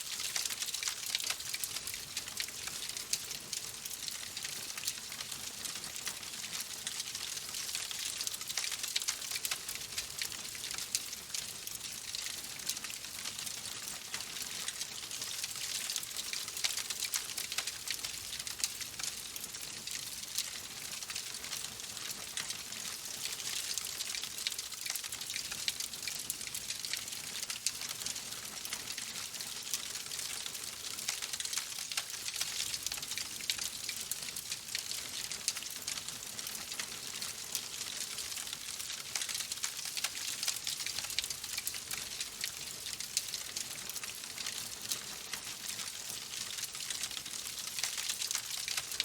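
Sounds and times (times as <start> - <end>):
wood fire crackling: 8.0 - 10.8, 36.5 - 45.5.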